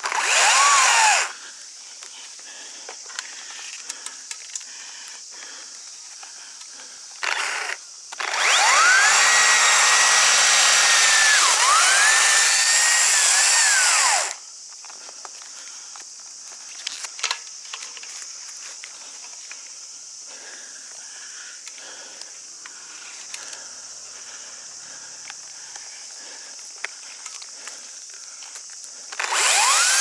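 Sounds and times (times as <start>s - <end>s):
chainsaw revving: 0.0s - 1.3s, 7.2s - 14.4s, 29.1s - 30.0s.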